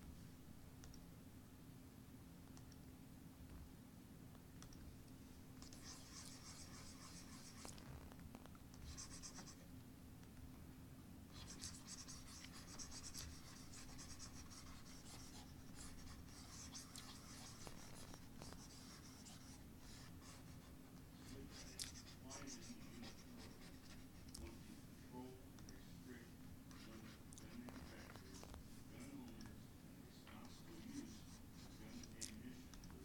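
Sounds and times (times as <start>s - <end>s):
faint low hum: 0.0s - 33.0s
scratching of drawing strokes: 5.7s - 7.8s, 8.8s - 9.6s, 11.3s - 24.6s, 26.7s - 29.1s, 30.3s - 32.6s.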